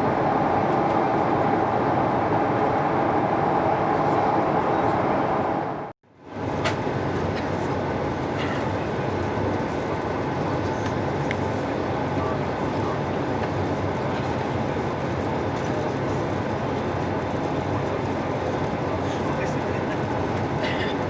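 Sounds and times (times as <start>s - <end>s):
airplane cabin rush: 0.0s - 21.0s.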